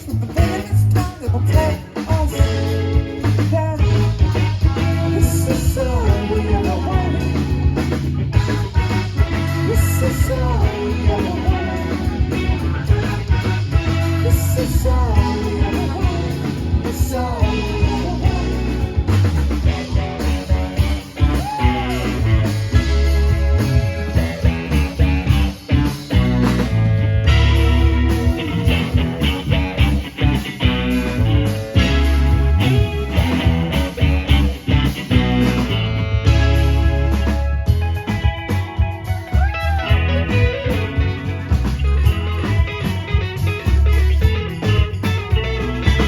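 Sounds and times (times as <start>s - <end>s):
electric guitar bending melodic lines: 0.0s - 46.0s
live rock band playing: 0.0s - 46.0s.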